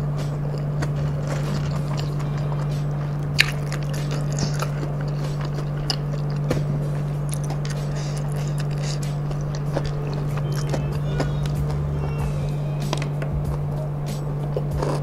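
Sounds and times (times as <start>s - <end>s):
crunchy food chewing: 0.0s - 15.0s
low steady hum: 0.0s - 15.0s.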